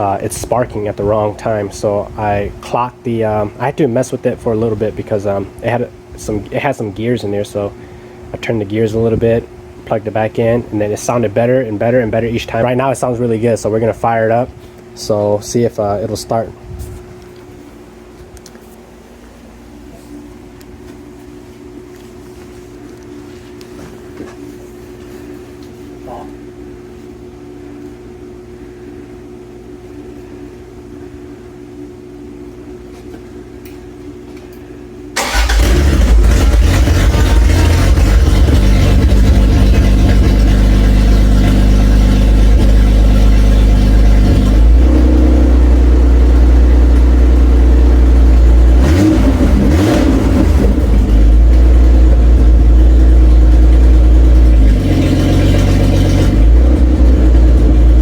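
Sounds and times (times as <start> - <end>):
steady hum: 0.0 - 58.0
car engine starting and running: 35.2 - 58.0.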